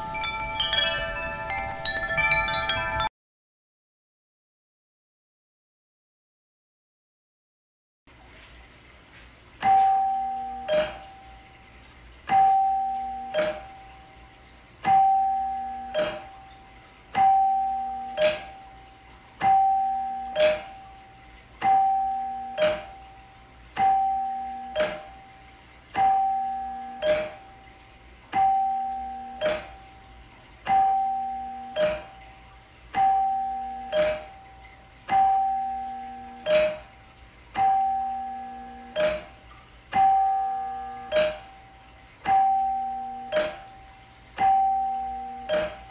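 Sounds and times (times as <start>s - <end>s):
two-tone doorbell chime: 0.0s - 3.1s, 9.6s - 11.6s, 12.3s - 14.2s, 14.8s - 27.7s, 28.3s - 36.9s, 37.6s - 45.9s.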